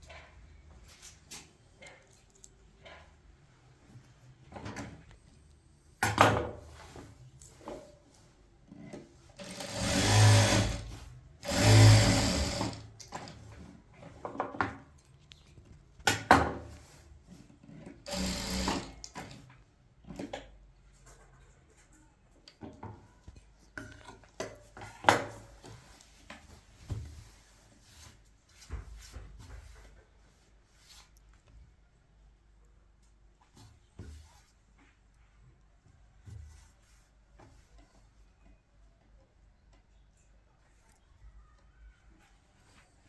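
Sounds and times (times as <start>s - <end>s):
small machine motor running: 9.4s - 12.8s, 18.1s - 19.0s.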